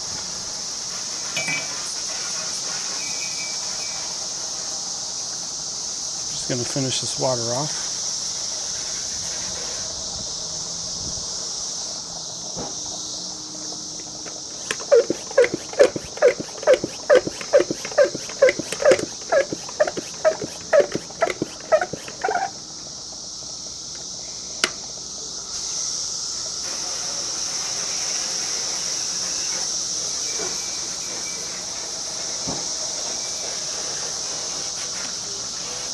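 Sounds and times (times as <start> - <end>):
insects chirring: 0.1 - 35.9
spray bottle squeaking: 14.2 - 22.6.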